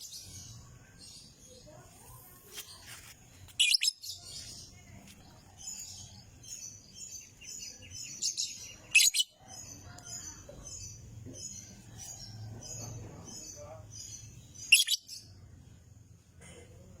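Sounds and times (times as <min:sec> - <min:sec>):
lovebird chattering: 0:03.5 - 0:04.7, 0:07.2 - 0:09.4, 0:13.4 - 0:15.2.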